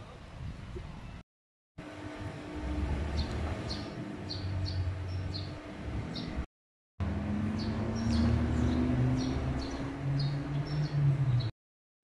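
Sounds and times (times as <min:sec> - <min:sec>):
steady low hum: 0:01.8 - 0:07.8
small birds chirping: 0:03.1 - 0:06.5, 0:07.5 - 0:11.5.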